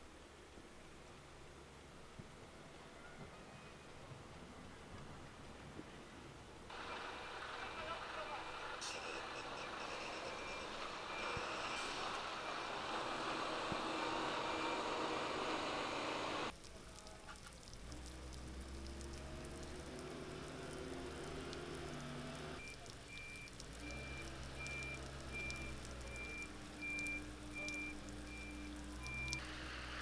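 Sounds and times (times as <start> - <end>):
street noise hiss: 0.0 - 30.0
vehicle engine running: 6.7 - 16.5
high electronic beep: 22.6 - 29.4.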